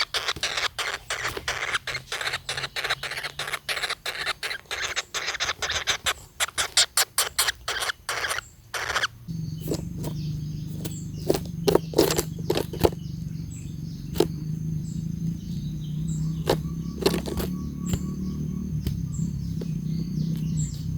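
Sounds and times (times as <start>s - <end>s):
woodpecker rasping strokes: 0.0s - 20.9s
steady low hum: 9.2s - 20.9s
sharp taps: 16.2s - 20.9s.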